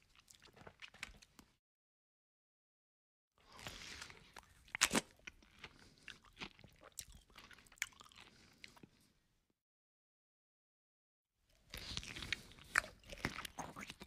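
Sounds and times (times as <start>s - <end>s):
person chewing with crunches: 0.0s - 1.6s, 3.4s - 9.1s, 11.6s - 14.0s.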